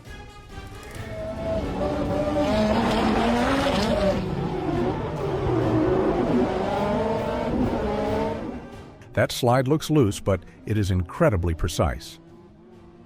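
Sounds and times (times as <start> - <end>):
tires squealing: 0.8 - 8.6
car engine revving: 0.9 - 9.0, 11.5 - 13.0.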